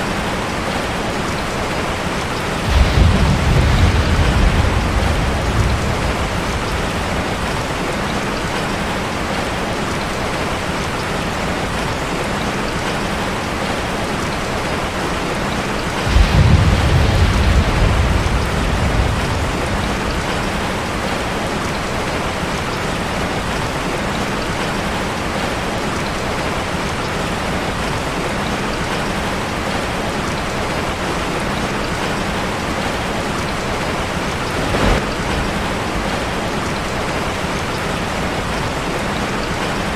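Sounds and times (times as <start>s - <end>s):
heavy rain on a metal roof: 0.0s - 39.9s
low rumble: 2.6s - 8.0s.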